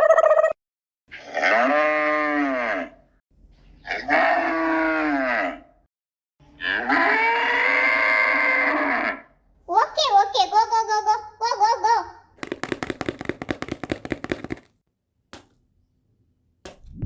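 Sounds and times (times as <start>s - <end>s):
cow mooing: 1.4s - 3.0s.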